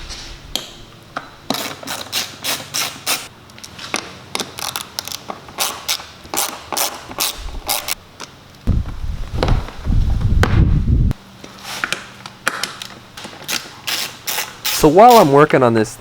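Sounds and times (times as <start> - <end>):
tools clicking and scraping: 1.5 - 8.0
deep handling sound: 8.7 - 11.2.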